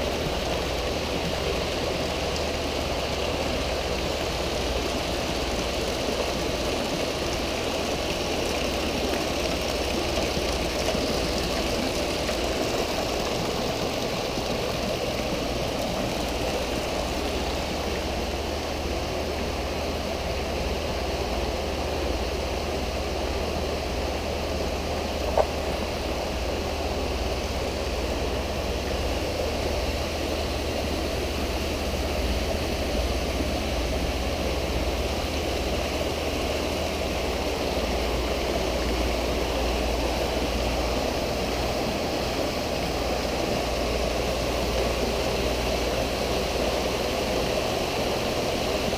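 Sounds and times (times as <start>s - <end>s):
water splashing into pool: 0.0s - 20.4s
low steady hum: 0.0s - 48.9s.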